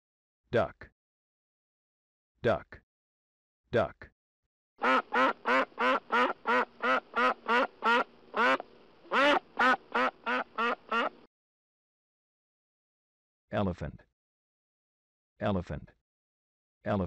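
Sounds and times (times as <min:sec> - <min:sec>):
duck quacking: 0:04.8 - 0:11.3.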